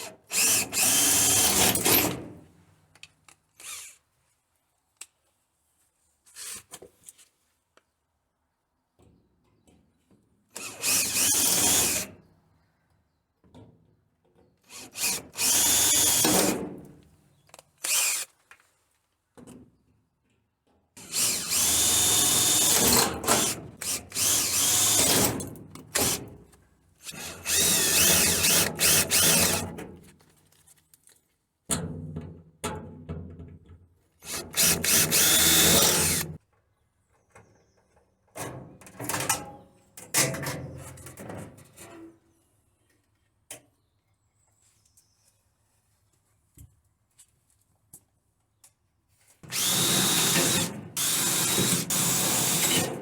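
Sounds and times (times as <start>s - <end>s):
power drill drilling rivets: 0.2s - 2.3s, 3.6s - 4.0s, 10.6s - 12.1s, 14.6s - 16.7s, 17.8s - 18.4s, 21.0s - 26.4s, 27.0s - 29.9s, 34.2s - 36.4s, 49.4s - 53.0s.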